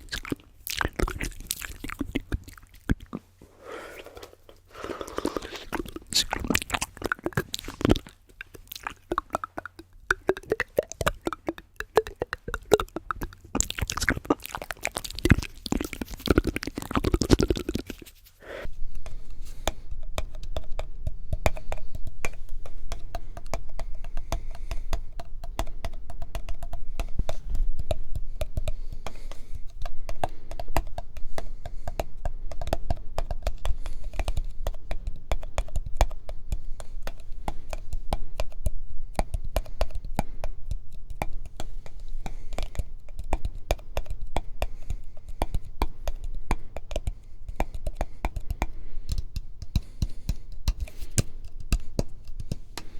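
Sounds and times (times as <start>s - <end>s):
fingertips tapping hard objects: 0.0s - 3.2s, 4.0s - 52.9s
steady low hum: 18.5s - 52.9s.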